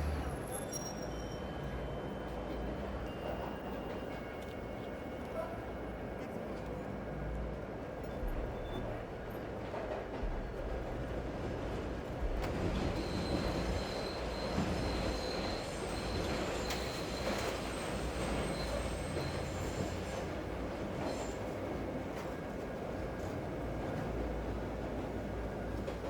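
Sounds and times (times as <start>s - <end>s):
train rumbling past: 0.0s - 4.8s, 8.2s - 26.0s
high wheel squeal: 13.0s - 20.3s.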